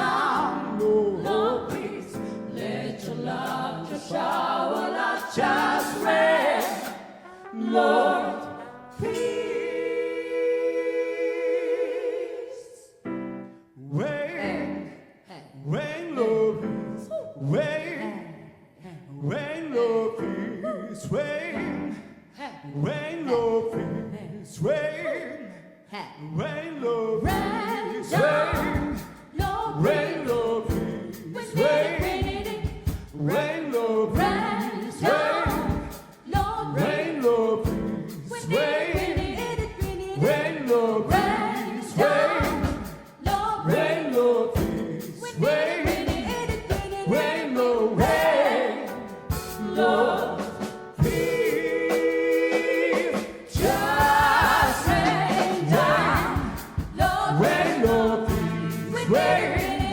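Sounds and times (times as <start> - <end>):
gospel vocal group singing: 0.0 - 59.9.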